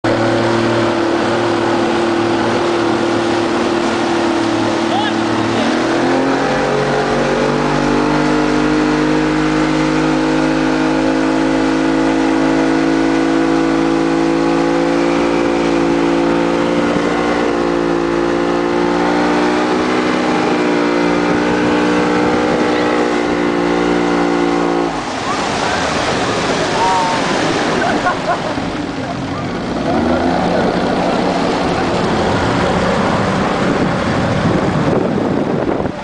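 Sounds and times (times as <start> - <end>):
motorboat engine at high revs: 0.0 - 36.0.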